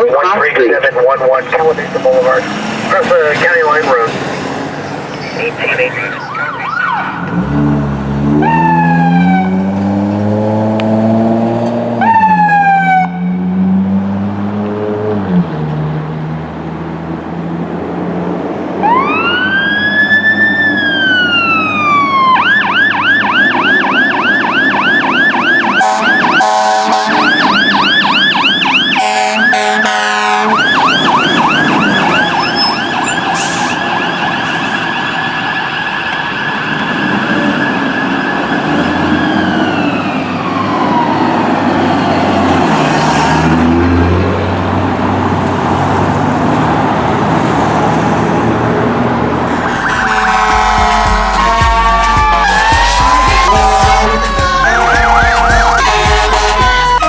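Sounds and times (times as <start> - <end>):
engine and road noise: 0.0 - 57.0
fire engine siren: 0.0 - 57.0
short loud horn blasts: 25.8 - 27.3, 29.0 - 30.6, 49.5 - 57.0.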